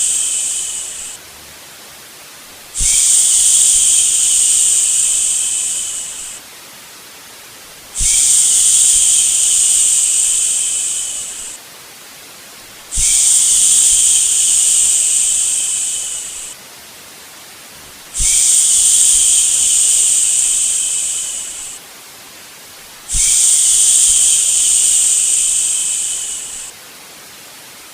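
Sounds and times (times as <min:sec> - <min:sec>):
person shushing: 0:00.0 - 0:01.2, 0:02.8 - 0:06.4, 0:08.0 - 0:11.6, 0:12.9 - 0:16.6, 0:18.2 - 0:21.8, 0:23.1 - 0:26.7
quiet steady hiss: 0:00.0 - 0:27.9.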